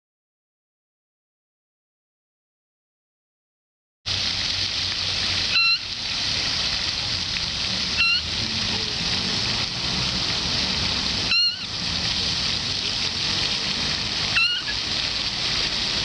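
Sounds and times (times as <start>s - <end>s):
running water: 4.1s - 16.0s
moorhen calls: 5.5s - 5.9s, 8.0s - 8.9s, 11.2s - 11.8s, 14.2s - 14.9s.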